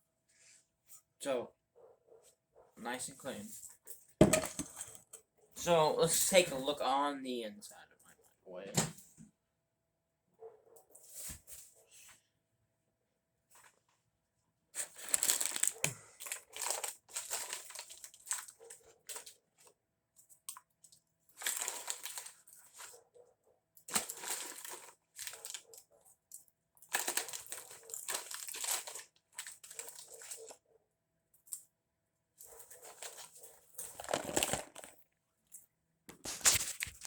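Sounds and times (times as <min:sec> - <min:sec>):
crinkling and rustling: 0:14.8 - 0:30.7, 0:32.3 - 0:37.0.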